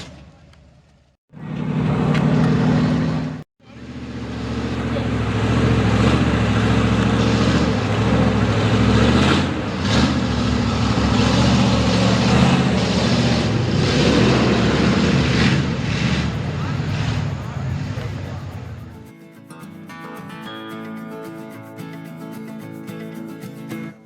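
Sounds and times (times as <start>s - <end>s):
truck engine running loud: 1.3s - 19.0s.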